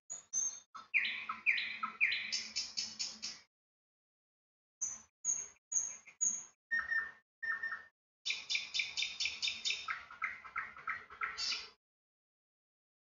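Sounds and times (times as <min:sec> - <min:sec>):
small bird chirping: 0:00.1 - 0:03.5, 0:04.8 - 0:11.8.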